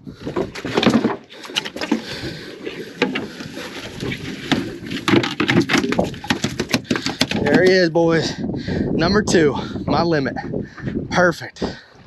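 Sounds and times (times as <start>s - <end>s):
knocks and clatter on boat: 0.0s - 8.0s.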